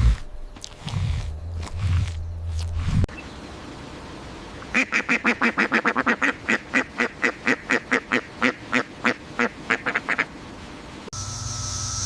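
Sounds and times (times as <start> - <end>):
low hum: 0.0 - 4.5, 11.2 - 12.0
steady hiss: 9.4 - 12.0.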